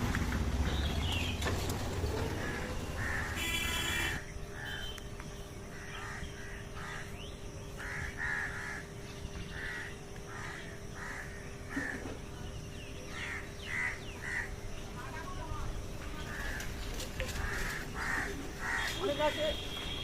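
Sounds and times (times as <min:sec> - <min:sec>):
crows cawing: 0:02.2 - 0:04.9, 0:05.7 - 0:07.1, 0:07.8 - 0:12.1, 0:13.1 - 0:14.6, 0:16.2 - 0:19.7.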